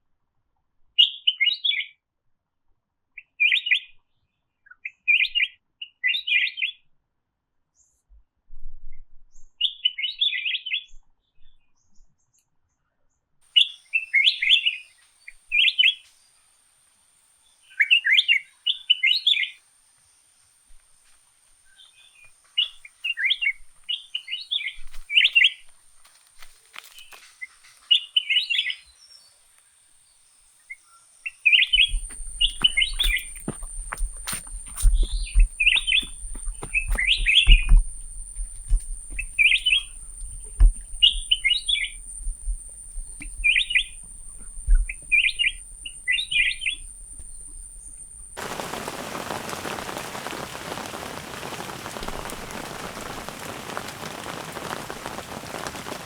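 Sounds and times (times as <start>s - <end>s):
songbird chirping: 26.9s - 56.0s
faint steady high whine: 28.9s - 56.0s.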